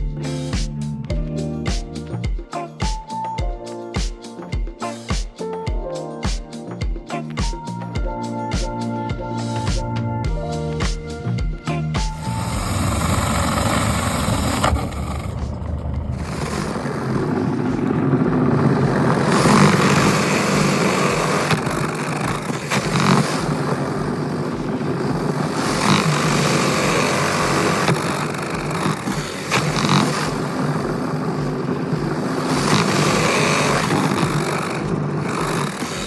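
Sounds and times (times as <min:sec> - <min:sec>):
power drill spinning duct brush: 0:12.1 - 0:36.0.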